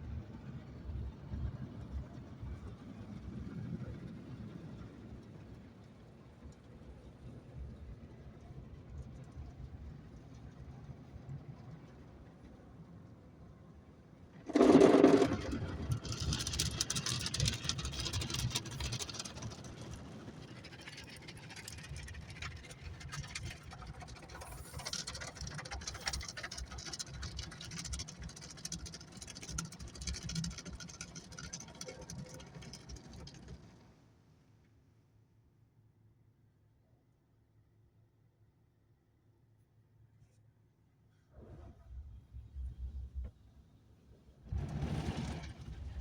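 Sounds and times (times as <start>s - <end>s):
car wash machinery rumbling: 14.4s - 33.8s.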